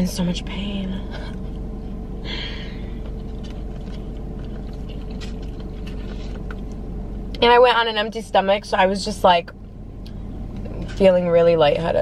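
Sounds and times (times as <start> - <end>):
car interior hum: 0.0 - 12.0
person chewing corn: 2.8 - 6.8.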